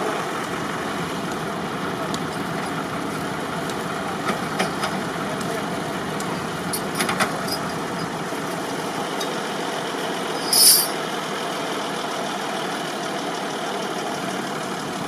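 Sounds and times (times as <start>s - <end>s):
tractor engines running: 0.0s - 15.0s.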